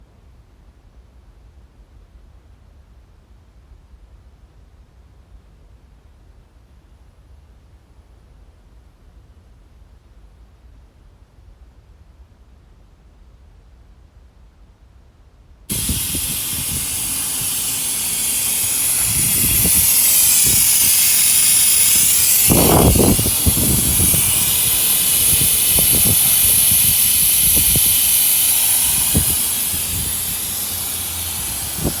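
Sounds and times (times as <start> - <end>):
oil extractor hissing: 15.7 - 32.0.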